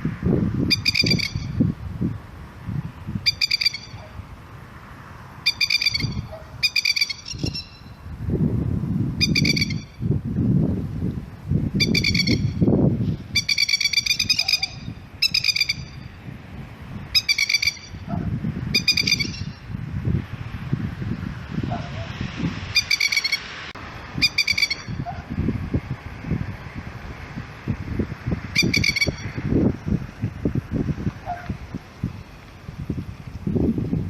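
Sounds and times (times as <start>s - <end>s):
lapwing alarm call: 0.7s - 1.6s, 3.2s - 4.2s, 5.4s - 8.0s, 9.2s - 10.0s, 11.8s - 12.7s, 13.3s - 16.1s, 17.1s - 19.7s, 22.7s - 23.5s, 24.2s - 25.3s, 28.6s - 29.3s.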